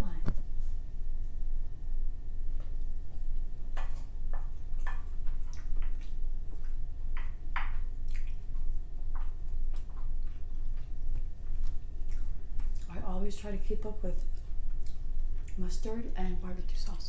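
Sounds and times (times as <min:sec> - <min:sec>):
person chewing food: 0:02.4 - 0:13.0, 0:14.1 - 0:15.7.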